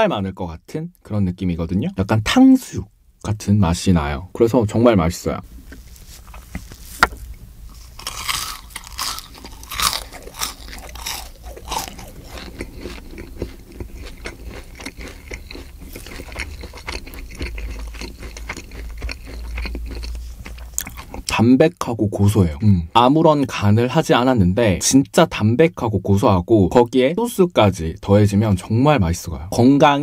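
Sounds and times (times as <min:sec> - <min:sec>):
crunching fried fish: 0:07.7 - 0:21.3.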